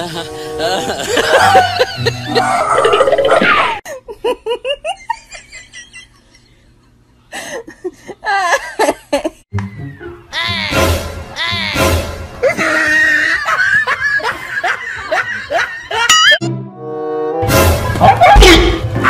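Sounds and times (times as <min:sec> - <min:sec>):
young woman laughing: 0:00.0 - 0:03.1, 0:03.9 - 0:06.8, 0:07.4 - 0:09.4, 0:12.4 - 0:16.4.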